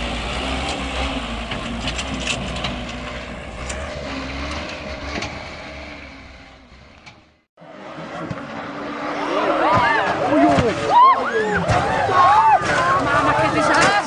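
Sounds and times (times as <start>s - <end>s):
heavy vehicle engine rumbling: 0.0s - 14.0s
knocks and clatter: 0.6s - 5.8s.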